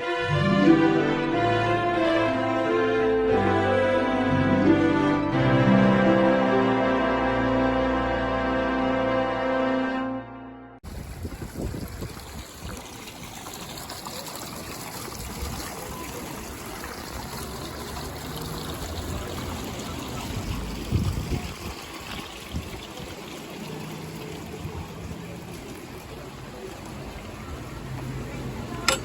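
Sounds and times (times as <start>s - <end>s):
running trickling water: 10.8s - 29.0s.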